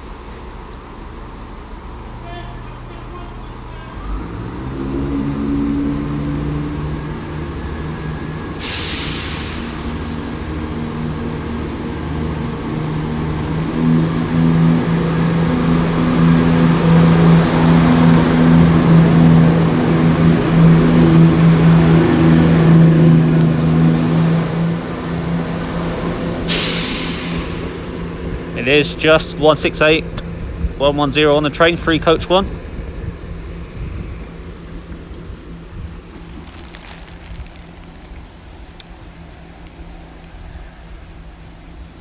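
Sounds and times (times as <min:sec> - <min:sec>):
train diesel engines running: 0:00.0 - 0:42.0
air release hiss: 0:08.6 - 0:10.4, 0:26.4 - 0:28.2.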